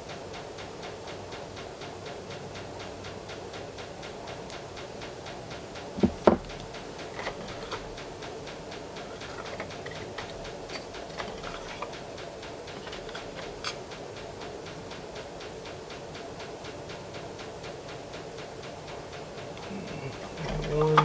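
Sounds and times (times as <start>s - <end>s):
steady hum: 0.0s - 21.0s
fast even ticking: 0.7s - 21.0s
sharp knocks: 6.0s - 6.6s
small tools clicking: 6.0s - 8.1s, 9.0s - 12.0s, 12.6s - 13.9s.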